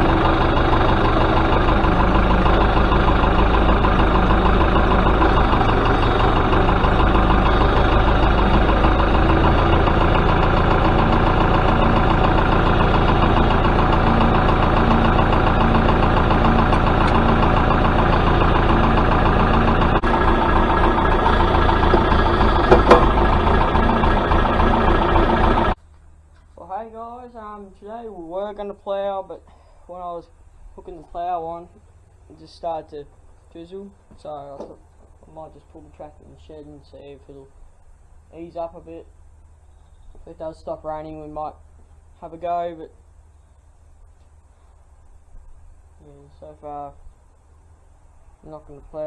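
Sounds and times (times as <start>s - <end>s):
tractor engine running: 0.0s - 27.2s
short knocks: 21.1s - 24.0s.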